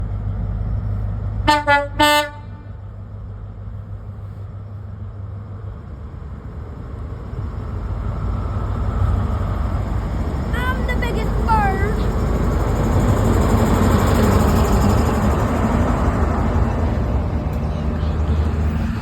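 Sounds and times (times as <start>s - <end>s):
train rumbling past: 0.0s - 19.0s
train horn blasts: 1.4s - 2.8s.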